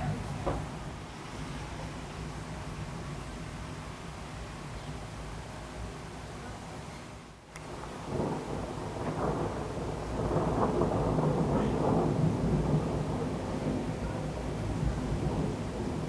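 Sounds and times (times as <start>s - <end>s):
rain falling: 7.6s - 16.0s
thunder rumbling: 7.7s - 16.0s.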